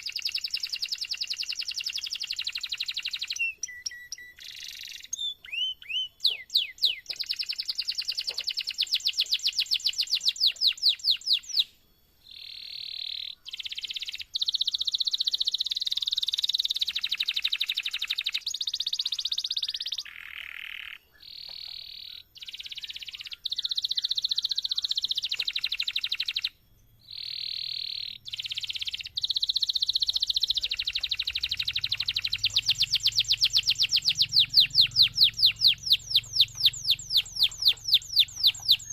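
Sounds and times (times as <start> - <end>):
canary singing rolling trills: 0.0 - 38.9.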